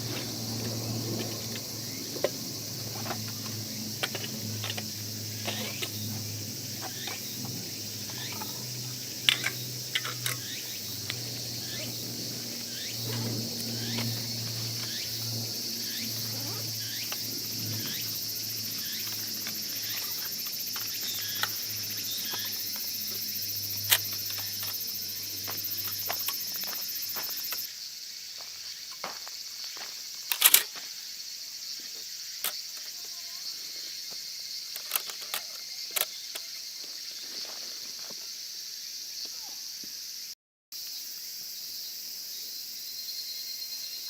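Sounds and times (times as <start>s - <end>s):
handling clicks and knocks: 0.0s - 11.6s, 34.8s - 36.5s
insect chirring: 0.0s - 44.0s.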